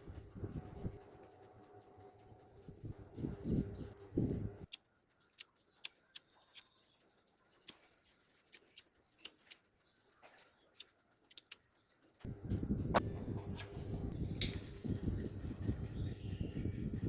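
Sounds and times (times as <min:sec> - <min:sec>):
small parts clicking and tapping: 0:03.8 - 0:12.3.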